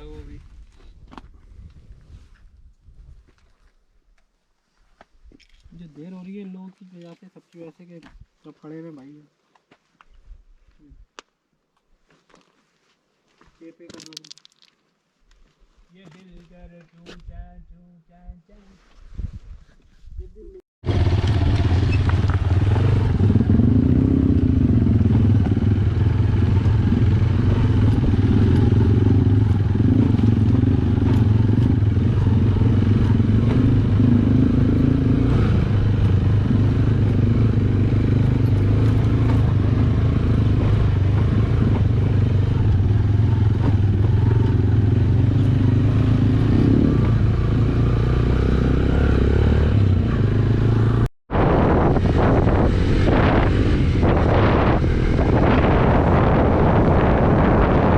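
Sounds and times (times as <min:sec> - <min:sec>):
wind and road noise: 0:00.0 - 0:04.2, 0:18.9 - 0:57.9
motorcycle engine running: 0:20.8 - 0:57.9.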